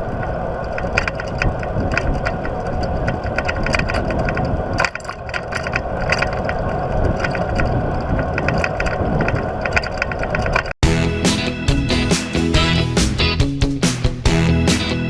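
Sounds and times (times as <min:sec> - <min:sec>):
wind rushing over microphone: 0:00.0 - 0:10.8.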